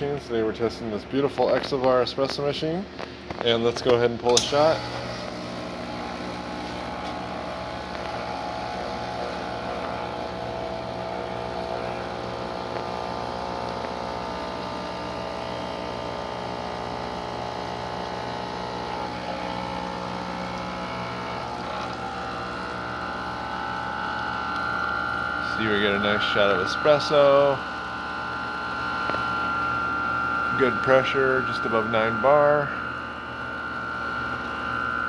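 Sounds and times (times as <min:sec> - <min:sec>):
espresso machine pump humming: 0:02.9 - 0:35.0.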